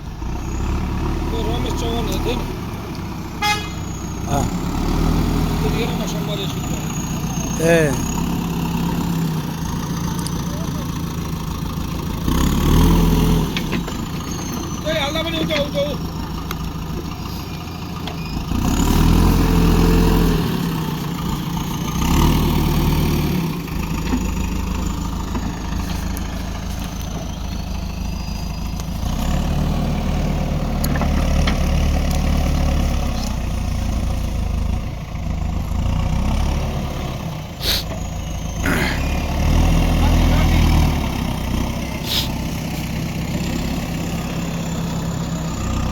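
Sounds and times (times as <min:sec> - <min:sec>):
diesel engine revving: 0:00.0 - 0:45.9.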